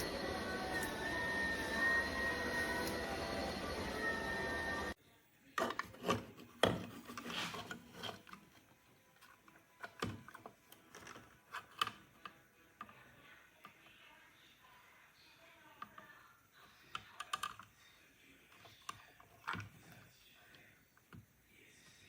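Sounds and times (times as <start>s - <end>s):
soft rubbing and scraping: 5.9s - 9.5s.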